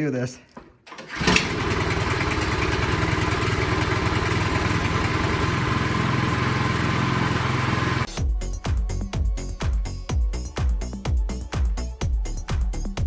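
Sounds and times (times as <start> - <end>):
snowblower engine running: 1.1 - 8.2
music: 8.1 - 13.0.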